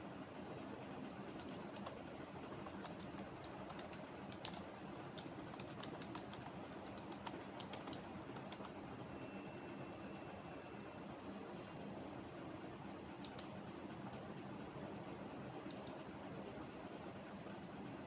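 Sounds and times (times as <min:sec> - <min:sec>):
computer keyboard typing: 0:01.4 - 0:08.8, 0:13.2 - 0:14.3, 0:15.6 - 0:16.0.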